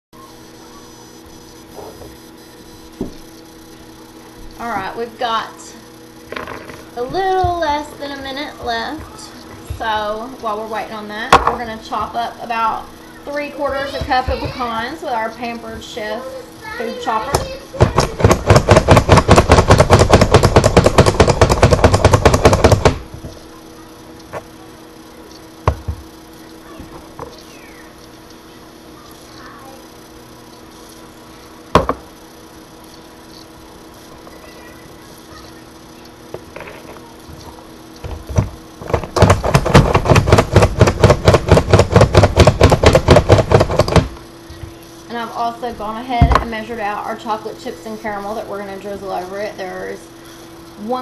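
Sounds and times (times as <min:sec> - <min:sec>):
food chopper clacking: 0:17.3 - 0:23.3, 0:38.0 - 0:44.2.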